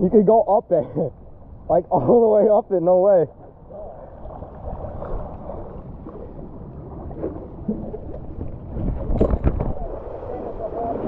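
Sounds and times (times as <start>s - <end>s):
wind rumbling on microphone: 3.3s - 11.0s
water rushing and splashing: 3.8s - 11.0s.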